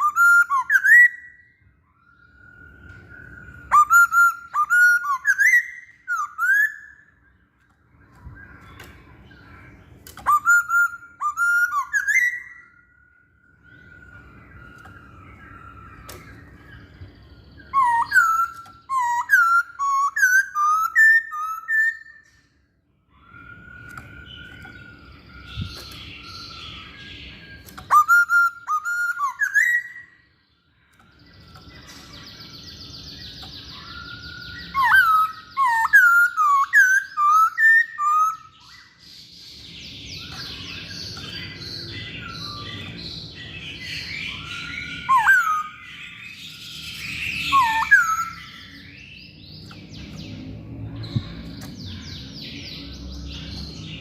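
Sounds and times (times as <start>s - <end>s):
bird singing whistled notes: 0.0s - 54.0s.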